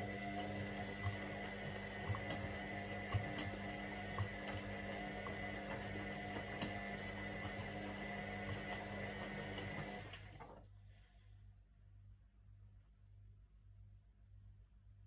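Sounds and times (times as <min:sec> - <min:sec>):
washing machine motor hum: 0:00.0 - 0:10.7.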